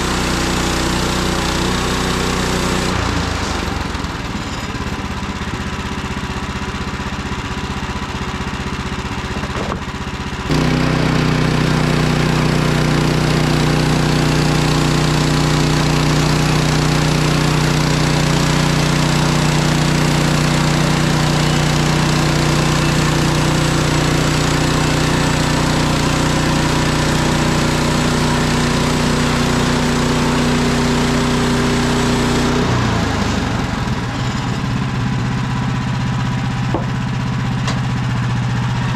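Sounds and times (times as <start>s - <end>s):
sawmill gas engine running: 0.0s - 38.9s.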